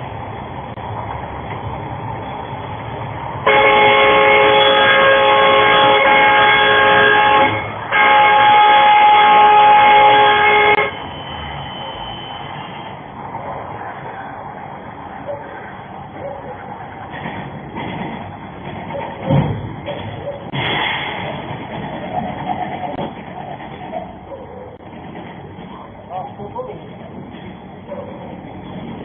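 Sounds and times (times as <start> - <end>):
road and engine noise: 0.0 - 29.0
truck air horn blasts: 3.4 - 11.1.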